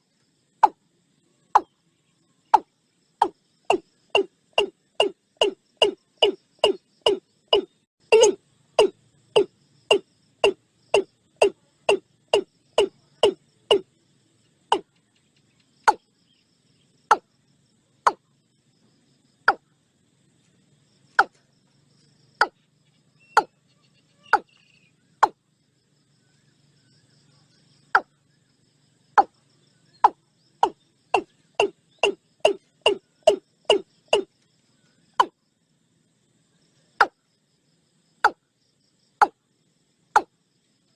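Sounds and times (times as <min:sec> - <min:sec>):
watercock calling: 0:02.6 - 0:13.8, 0:30.0 - 0:34.3.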